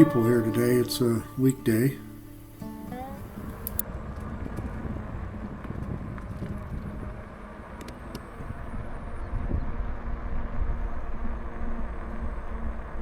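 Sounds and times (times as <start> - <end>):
wind rushing over microphone: 3.4 - 12.9.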